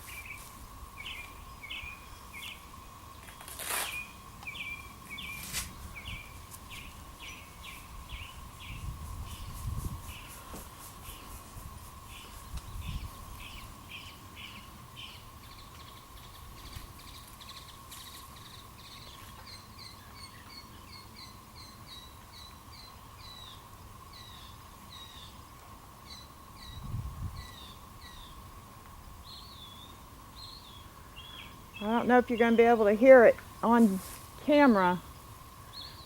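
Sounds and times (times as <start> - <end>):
songbirds chirping: 0.0 - 36.0
wind buffeting microphone: 5.1 - 10.5, 11.2 - 13.9, 26.6 - 27.8.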